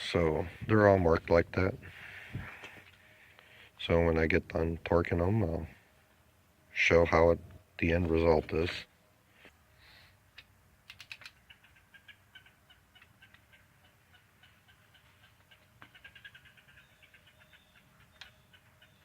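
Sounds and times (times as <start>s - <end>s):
sharp clicks: 10.3s - 11.4s.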